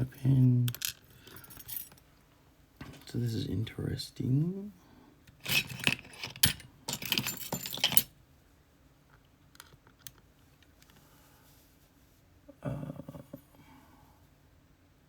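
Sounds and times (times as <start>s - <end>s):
metal lock parts rattling: 0.0s - 2.0s, 5.3s - 8.1s.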